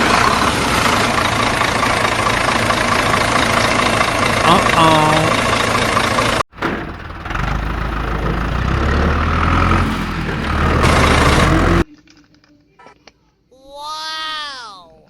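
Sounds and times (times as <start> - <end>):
vehicle engine rumbling: 0.0 - 11.9.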